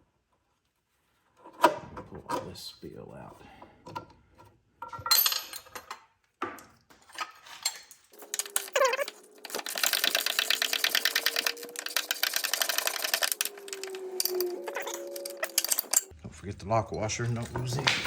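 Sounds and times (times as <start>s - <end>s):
power tool motor whining: 8.2s - 16.1s.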